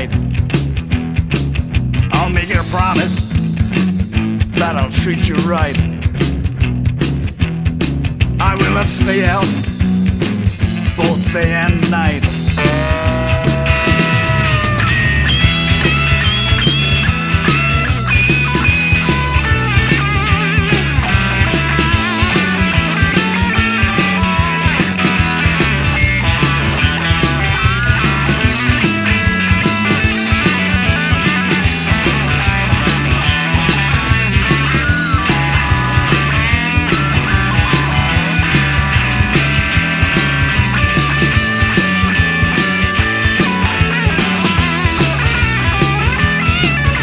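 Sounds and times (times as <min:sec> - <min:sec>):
bass guitar figure: 0:00.0 - 0:47.0
drums: 0:00.0 - 0:47.0
electric guitar lead lines: 0:00.0 - 0:47.0.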